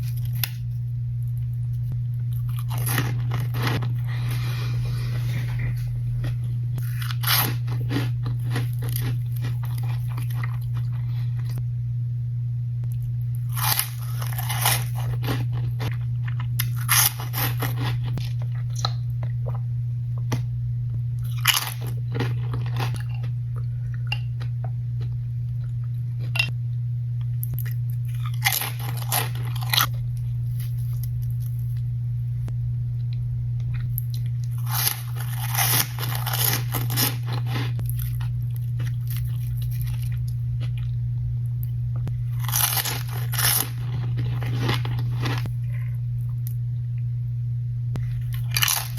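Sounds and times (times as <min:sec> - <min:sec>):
steady low hum: 0:00.0 - 0:48.9
loud crunching of chips: 0:02.4 - 0:04.8, 0:06.2 - 0:11.4, 0:13.4 - 0:19.0, 0:21.2 - 0:23.4, 0:27.6 - 0:31.5, 0:34.1 - 0:40.8, 0:42.2 - 0:45.8, 0:48.0 - 0:48.9.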